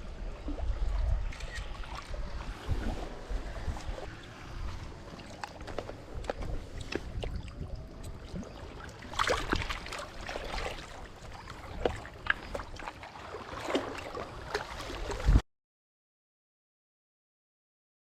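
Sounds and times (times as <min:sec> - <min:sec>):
wind rumble on microphone: 0:00.0 - 0:12.9, 0:14.0 - 0:15.4
water lapping and splashing: 0:00.0 - 0:15.4.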